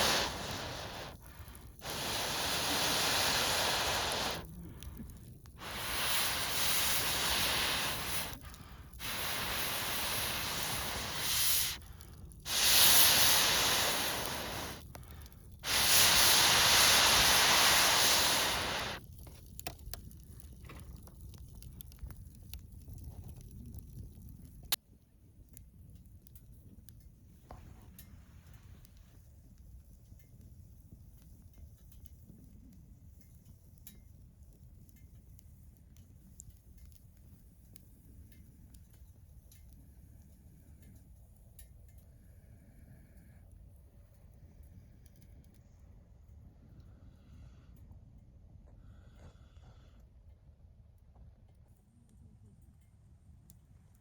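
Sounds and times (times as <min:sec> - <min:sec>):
air blown hissing into fire: 0:00.0 - 0:24.8
fire crackling: 0:00.0 - 0:47.6.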